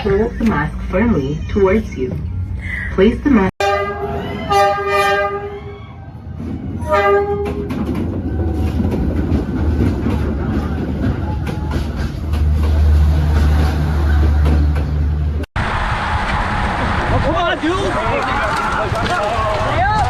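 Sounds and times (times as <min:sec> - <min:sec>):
train passing with rail clatter: 0:00.0 - 0:20.0
train horn blasts: 0:03.6 - 0:05.7, 0:06.8 - 0:07.7.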